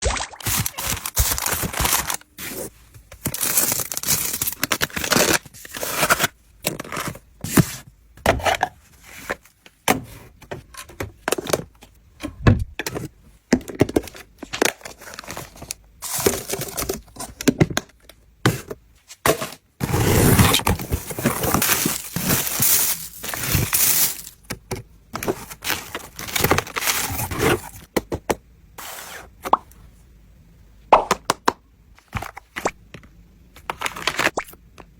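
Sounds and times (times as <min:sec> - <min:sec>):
packaging tearing and crinkling: 0:00.3 - 0:06.3, 0:19.8 - 0:24.4, 0:25.2 - 0:27.8.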